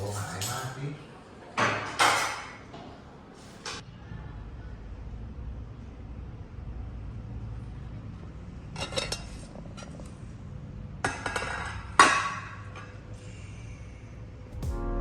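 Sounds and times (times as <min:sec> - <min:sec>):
crockery and cutlery clinking: 0:00.0 - 0:00.9, 0:01.6 - 0:02.7.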